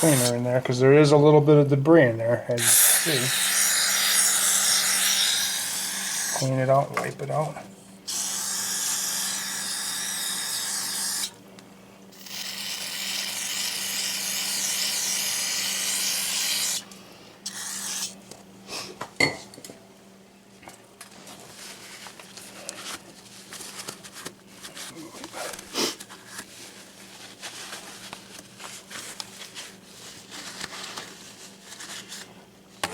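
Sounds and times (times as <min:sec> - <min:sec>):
aerosol spray hissing: 0:00.0 - 0:00.3, 0:02.6 - 0:06.4.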